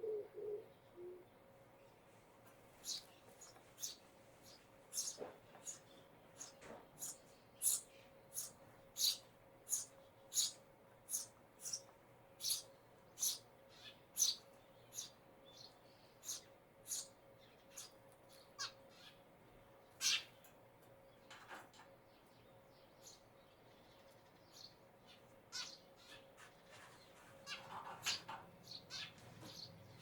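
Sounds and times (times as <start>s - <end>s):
sparrow chirping: 2.8s - 19.2s, 19.9s - 20.3s, 22.2s - 26.3s, 27.5s - 30.0s.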